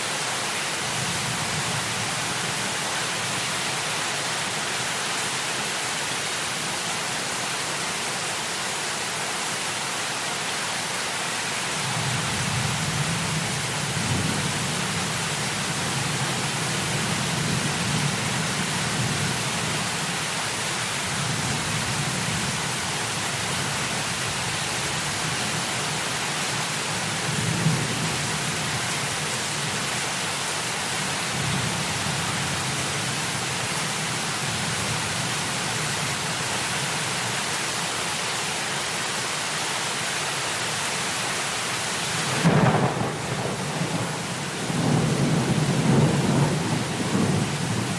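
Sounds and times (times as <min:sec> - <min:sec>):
heavy rain falling: 0:00.0 - 0:47.9
thunder rumbling: 0:42.3 - 0:47.9
sharp thunder clap: 0:42.4 - 0:47.5.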